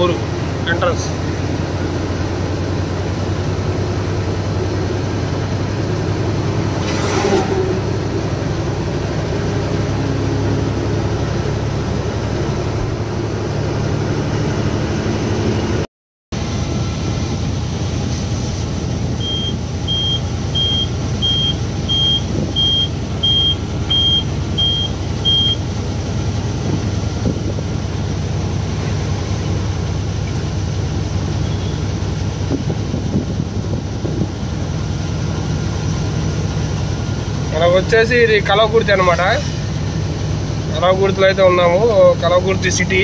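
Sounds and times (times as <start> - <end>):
truck engine and road noise: 0.0 - 43.0
short electronic beeps: 19.2 - 25.6.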